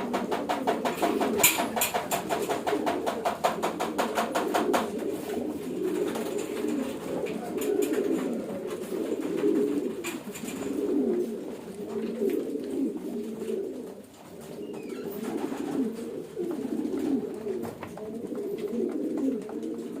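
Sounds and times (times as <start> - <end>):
pigeons cooing: 0.0 - 20.0.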